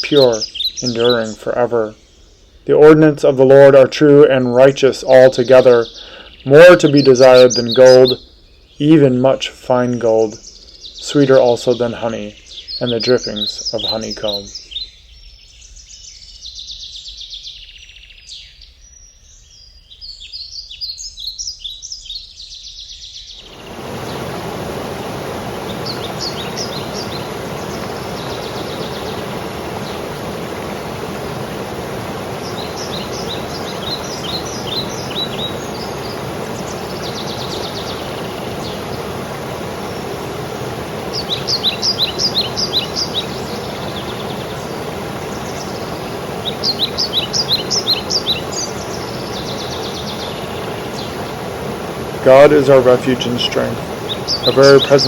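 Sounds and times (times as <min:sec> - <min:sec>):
waterfall rushing: 0:00.0 - 0:01.2, 0:23.4 - 0:55.0
small birds chirping: 0:00.0 - 0:55.0.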